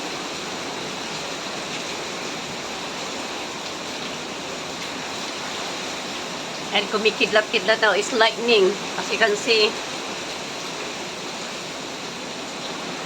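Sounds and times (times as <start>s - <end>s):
driving rain: 0.0s - 13.0s
hurricane-force wind: 0.0s - 13.0s.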